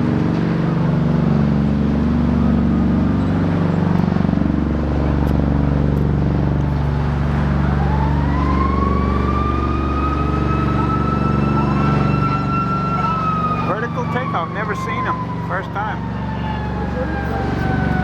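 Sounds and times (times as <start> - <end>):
aircraft engines droning: 0.0 - 18.0
siren rising in pitch: 7.0 - 18.0.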